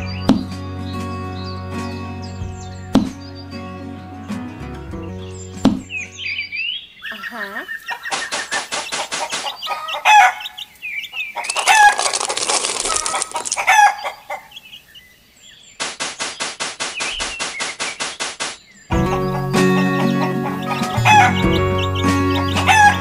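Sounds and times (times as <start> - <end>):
hens clucking and squawking: 7.1 - 14.6, 18.9 - 23.0
rapid wing flapping: 8.0 - 9.7, 11.4 - 13.9, 15.8 - 18.7.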